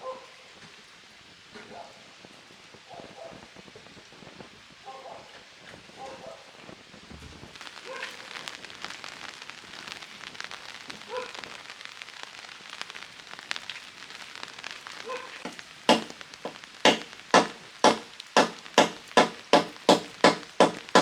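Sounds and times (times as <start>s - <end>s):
rain pattering: 0.0s - 21.0s
chopping blows: 15.4s - 21.0s.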